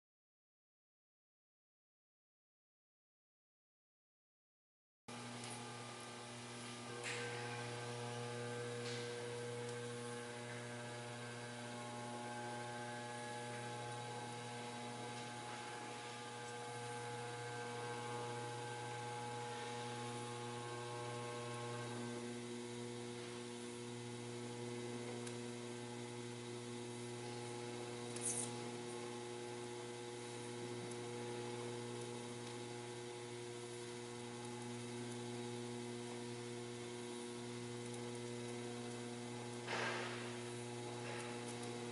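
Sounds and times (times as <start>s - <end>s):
steady electrical hum: 5.1s - 41.9s.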